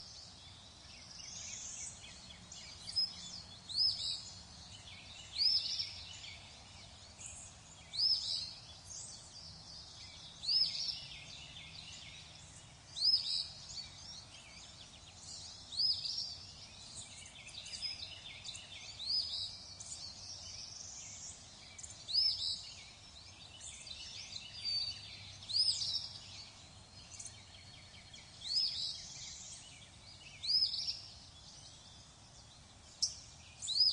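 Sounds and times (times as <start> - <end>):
soft hiss: 0.0 - 33.9
songbirds calling: 0.0 - 33.9.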